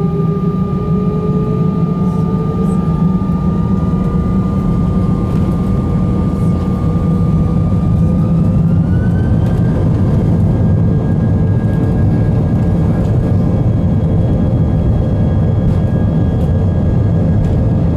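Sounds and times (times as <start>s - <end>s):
thin rising whine: 0.0s - 10.0s
jet engines rumbling: 0.0s - 17.9s.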